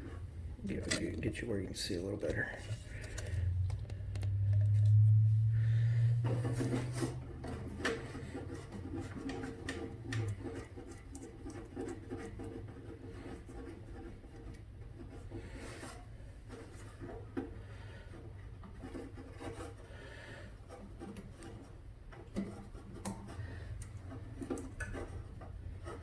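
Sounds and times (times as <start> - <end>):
low steady hum: 0.0 - 12.9.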